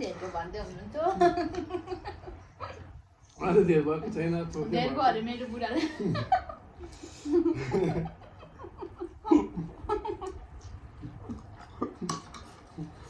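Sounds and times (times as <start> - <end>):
soft laughter and chuckling: 5.8 - 13.0.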